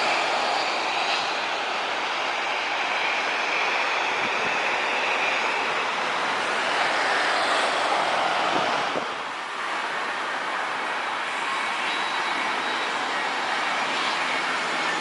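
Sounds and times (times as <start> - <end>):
jet engines rushing with whine: 0.0 - 15.0.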